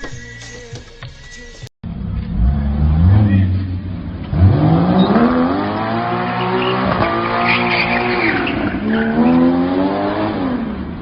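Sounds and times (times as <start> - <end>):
car engine accelerating hard: 1.9 - 11.0
tyre squeal: 6.3 - 9.4.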